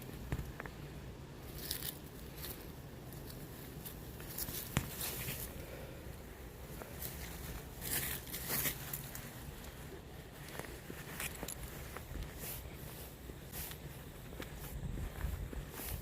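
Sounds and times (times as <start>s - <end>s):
footsteps: 0.0s - 16.0s
rustling: 0.0s - 16.0s.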